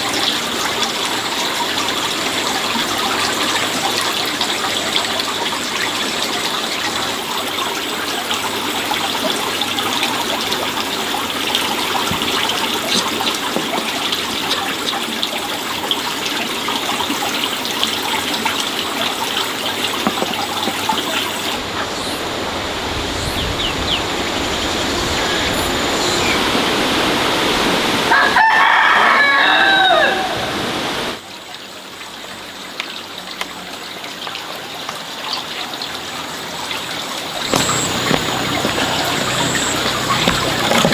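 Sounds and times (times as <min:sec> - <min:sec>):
water splashing and trickling: 0:00.0 - 0:40.9
rooster crowing: 0:28.1 - 0:30.6.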